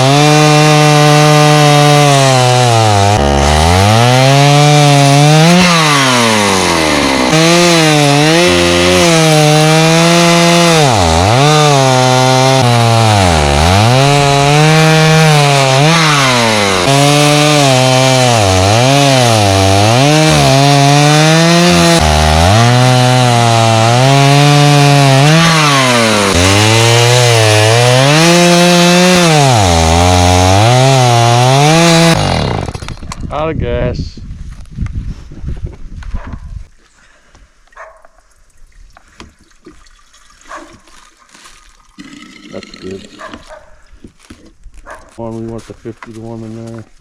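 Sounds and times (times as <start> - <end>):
chainsaw cutting logs: 0.0 - 33.3, 40.4 - 45.2.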